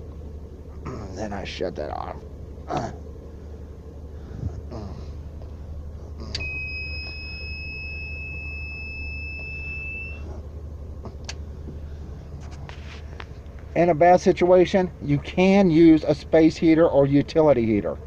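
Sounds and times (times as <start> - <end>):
van engine idling: 0.0 - 18.0
long electronic beep: 6.4 - 10.3.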